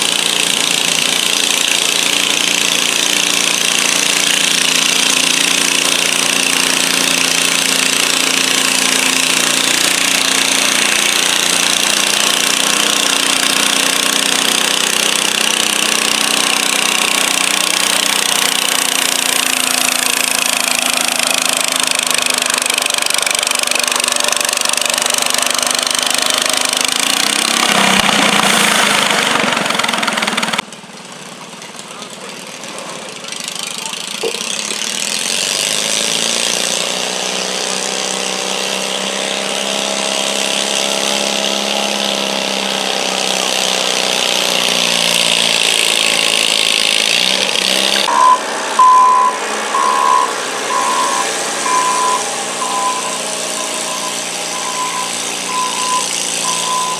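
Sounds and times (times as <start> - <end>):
engine pitch rising and falling: 0.0 - 30.6, 31.4 - 56.9
garden tractor engine running: 0.0 - 56.9
short even beeps: 48.1 - 56.9.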